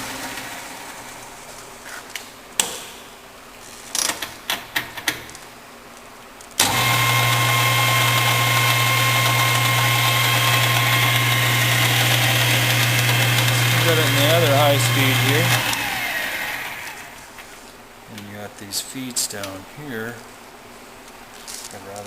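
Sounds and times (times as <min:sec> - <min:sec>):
lathe motor humming and whining: 0:06.6 - 0:17.3.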